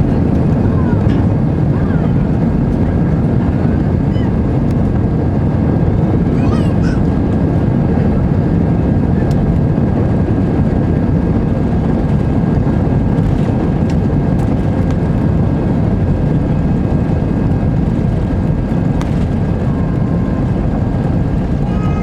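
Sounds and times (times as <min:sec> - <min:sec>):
airliner cabin engine rumble: 0:00.0 - 0:22.0.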